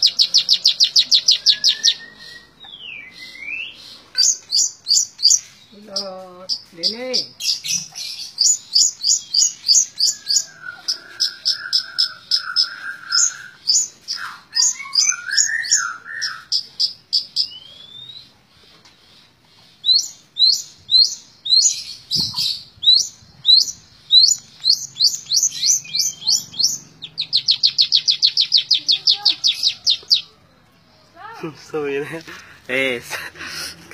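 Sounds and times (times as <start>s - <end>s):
lower warbling bird phrase: 0.0s - 4.0s, 22.3s - 30.5s
bird singing sharp high notes: 0.0s - 16.6s, 19.9s - 30.3s.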